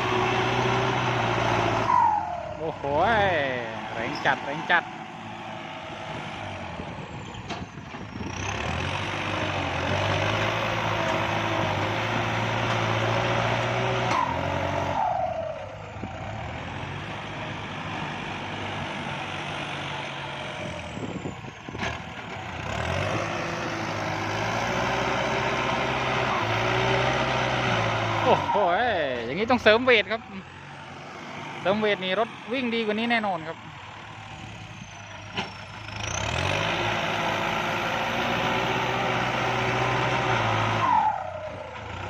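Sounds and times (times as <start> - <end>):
diesel tractor engine under load: 0.0 - 42.0.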